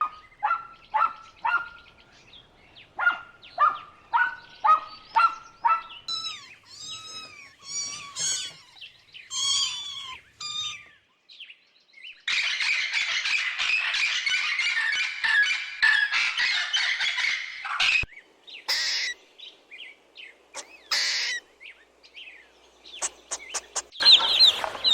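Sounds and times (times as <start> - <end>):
chorus of squawking calls: 3.0 - 11.0, 18.7 - 19.2, 20.6 - 21.5, 22.9 - 24.9
long arching animal calls: 3.0 - 11.0, 18.6 - 19.2, 20.5 - 22.3, 22.9 - 24.9
short pitched animal calls: 6.1 - 10.9.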